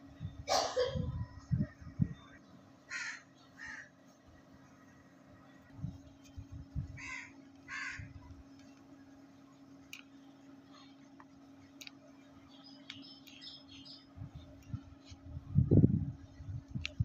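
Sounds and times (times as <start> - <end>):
steady low hum: 0.0 - 17.0
harsh bird calls: 2.2 - 4.0, 6.9 - 8.2.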